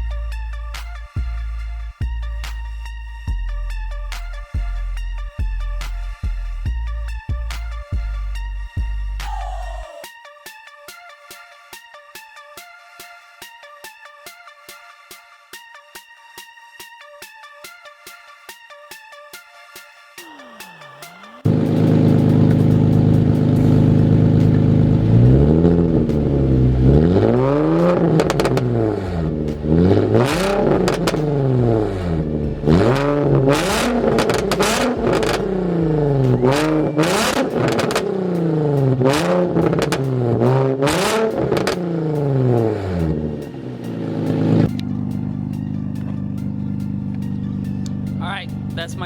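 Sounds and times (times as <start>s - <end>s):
car engine revving with crackles: 21.4s - 49.0s.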